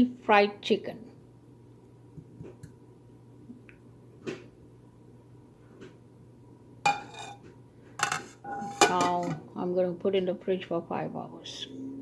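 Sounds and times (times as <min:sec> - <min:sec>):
dishes clicking and knocking: 0:06.9 - 0:09.5.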